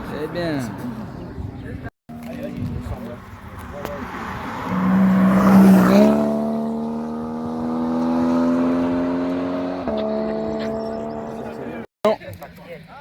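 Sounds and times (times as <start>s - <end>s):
rally car engine passing: 2.1s - 11.9s.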